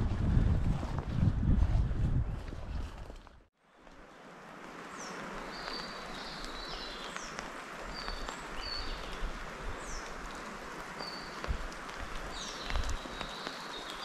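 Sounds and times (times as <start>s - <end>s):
songbirds chirping and whistling: 5.0s - 10.3s, 12.2s - 14.0s.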